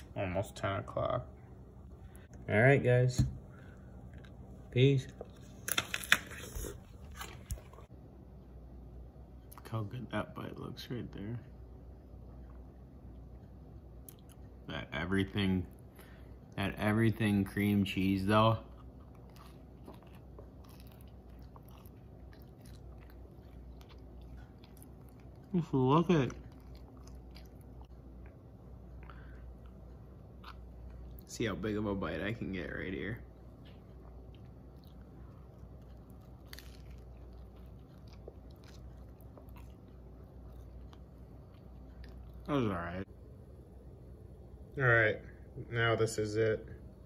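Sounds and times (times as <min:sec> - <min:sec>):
person chewing bagel crunches: 0:17.6 - 0:31.3, 0:32.8 - 0:43.0.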